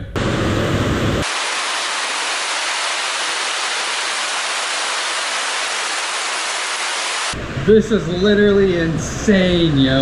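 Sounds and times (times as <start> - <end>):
heavy rain pouring: 0.7 - 7.4.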